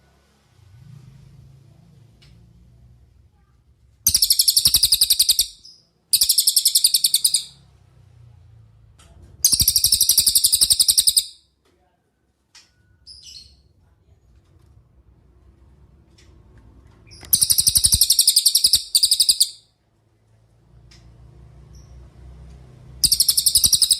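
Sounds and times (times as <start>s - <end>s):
songbird rattling trills: 4.1s - 7.6s, 9.4s - 11.3s, 17.3s - 19.6s, 23.0s - 23.9s
faint bird call notes: 23.0s - 23.9s.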